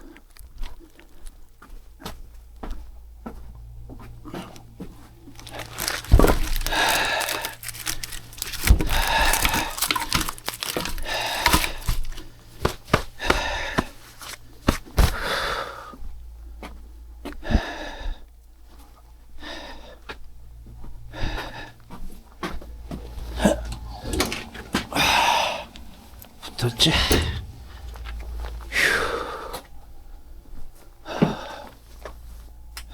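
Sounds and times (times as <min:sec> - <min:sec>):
paper crumpling and tearing: 0:05.3 - 0:12.2.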